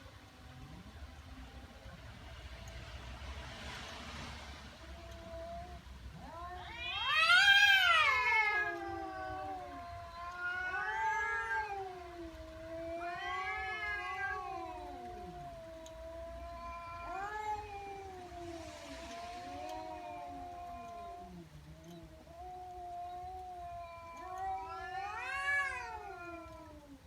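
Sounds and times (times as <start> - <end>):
cat yowling: 4.8 - 21.5, 22.1 - 27.0.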